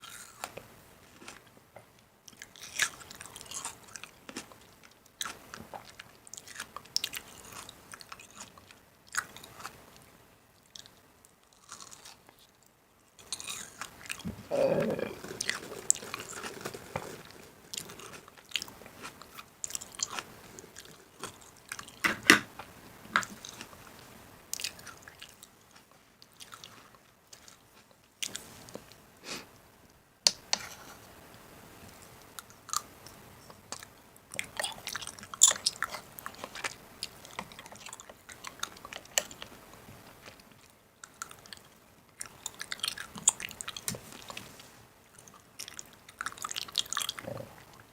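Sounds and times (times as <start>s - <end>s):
food crunching and clicking: 0.0s - 29.0s, 31.9s - 44.4s, 45.1s - 47.9s
rustling crunch: 14.2s - 20.3s.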